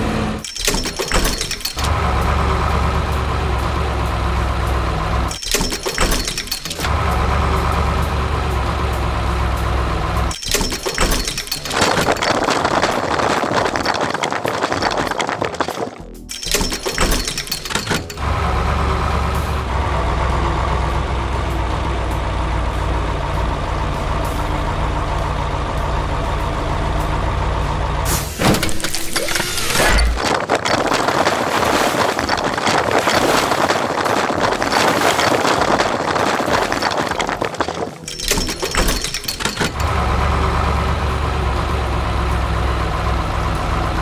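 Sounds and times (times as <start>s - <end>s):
heavy vehicle engine running: 0.0s - 0.4s, 1.7s - 5.4s, 6.0s - 10.4s, 17.9s - 30.2s, 39.6s - 44.0s.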